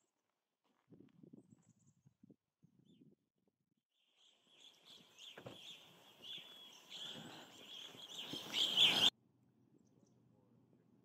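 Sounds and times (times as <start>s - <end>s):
bird chirping: 4.0s - 9.1s.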